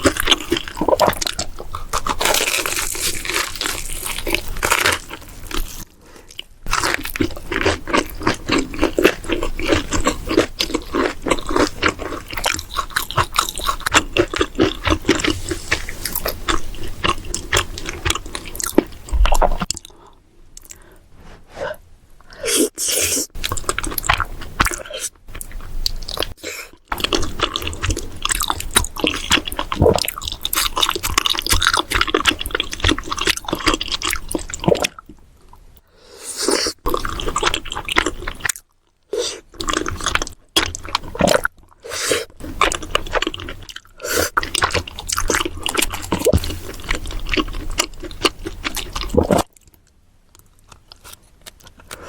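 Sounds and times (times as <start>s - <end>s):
chewing and crunching food: 0.0s - 21.0s, 22.6s - 52.0s.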